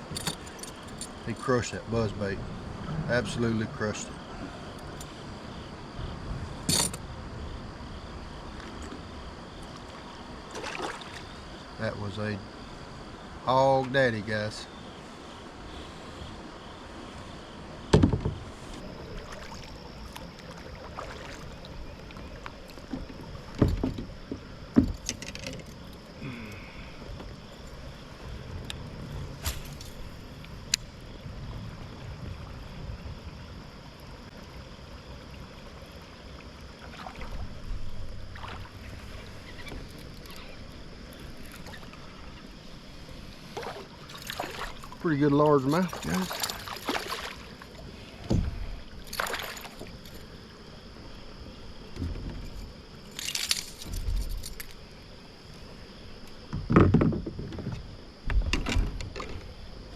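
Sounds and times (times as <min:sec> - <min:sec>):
outdoor background noise: 0:00.0 - 0:59.9
heavy thumps inside kayak: 0:17.8 - 0:18.9, 0:22.8 - 0:25.4, 0:48.2 - 0:48.8, 0:51.9 - 0:52.6, 0:56.4 - 0:59.6.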